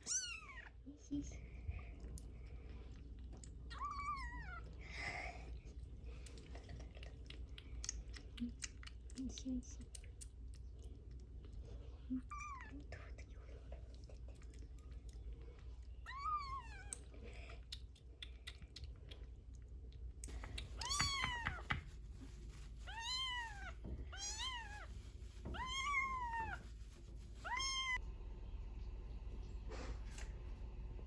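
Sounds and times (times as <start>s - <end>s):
kitten meowing: 0.0s - 0.7s, 3.7s - 4.6s, 16.0s - 17.0s, 20.6s - 21.8s, 22.9s - 24.9s, 25.5s - 26.6s, 27.4s - 28.0s.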